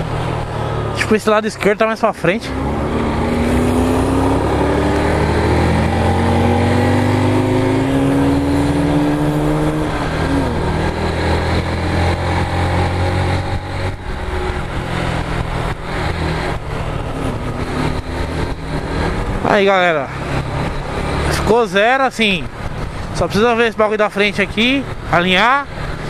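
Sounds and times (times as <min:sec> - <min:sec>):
wind and road noise: 0:00.0 - 0:26.0
motorcycle engine revving: 0:02.3 - 0:21.7.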